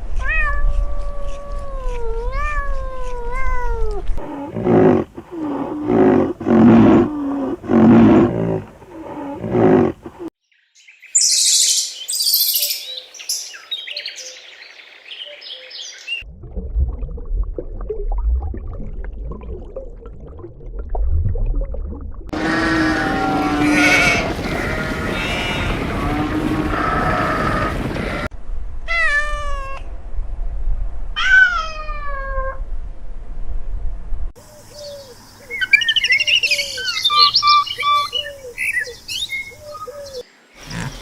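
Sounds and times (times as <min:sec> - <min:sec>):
cat meowing: 0:00.1 - 0:04.0, 0:28.9 - 0:29.9, 0:31.2 - 0:32.6
high bird chirping: 0:10.7 - 0:16.2, 0:34.8 - 0:40.2
loud animal calls: 0:22.3 - 0:28.3.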